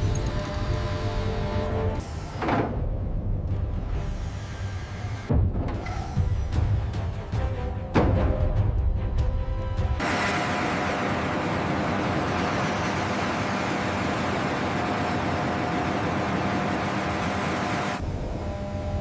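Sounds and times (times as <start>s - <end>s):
faint hum: 10.3s - 19.0s.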